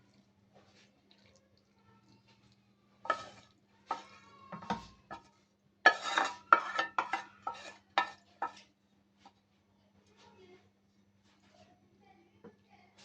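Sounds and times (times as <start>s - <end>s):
metal spoon clinking on a pot: 5.9s - 8.6s.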